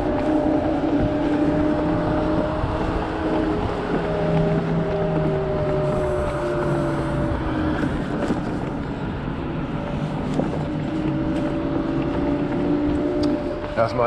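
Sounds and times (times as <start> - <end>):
electric motor whine: 0.0 - 14.0
wind rushing over microphone: 0.0 - 14.0.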